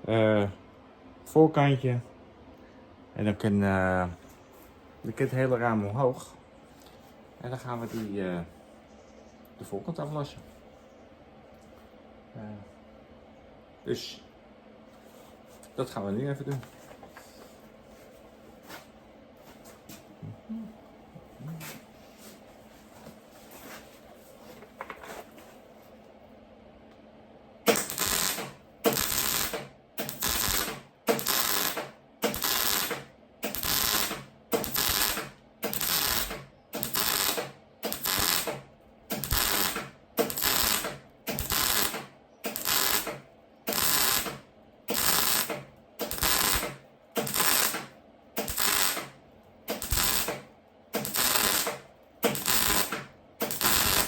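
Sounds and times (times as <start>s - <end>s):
crackling arc welding bursts: 27.6s - 54.0s.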